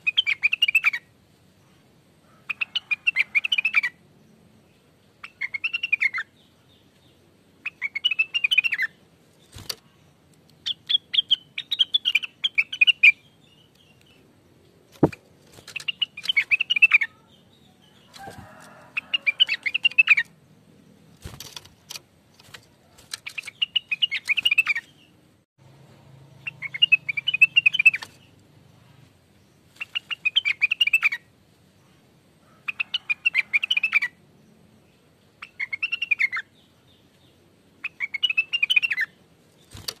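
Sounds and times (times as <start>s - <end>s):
bird singing chattering phrases: 0.0s - 1.0s, 4.8s - 14.2s, 14.9s - 18.2s, 22.9s - 25.2s, 26.4s - 28.8s, 29.8s - 31.2s, 34.9s - 39.8s.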